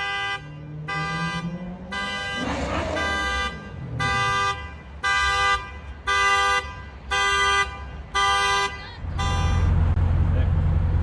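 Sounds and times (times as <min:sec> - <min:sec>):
car horn blasts: 0:00.0 - 0:09.8
low engine rumble: 0:08.8 - 0:11.0.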